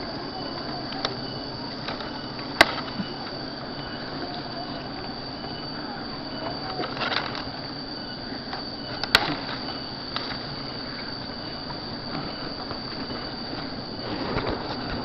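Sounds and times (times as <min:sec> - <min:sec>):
loud crack: 0:09.0 - 0:10.4.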